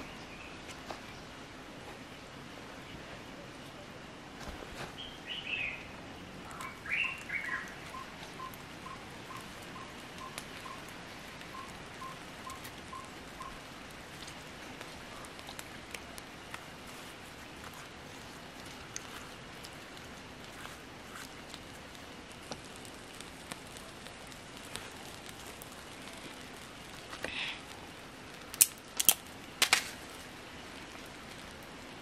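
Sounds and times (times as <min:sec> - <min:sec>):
background hiss: 0:00.0 - 0:32.0
birds chirping: 0:05.0 - 0:13.7.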